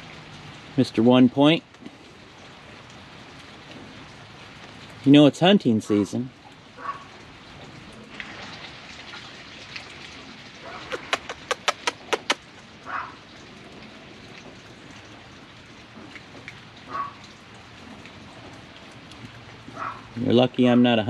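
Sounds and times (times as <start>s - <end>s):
rain pattering: 0.0s - 21.0s
sharp clicks: 10.9s - 12.4s.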